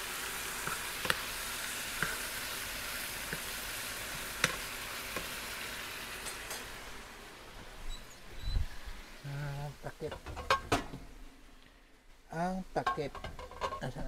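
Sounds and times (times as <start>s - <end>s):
chicken sizzling in hot oil: 0.0s - 7.4s.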